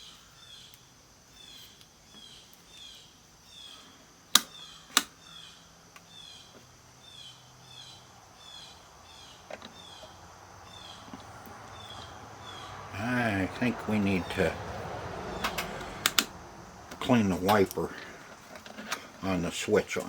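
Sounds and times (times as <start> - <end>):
rotary selector switch clicks: 4.3 - 5.2, 15.3 - 17.8.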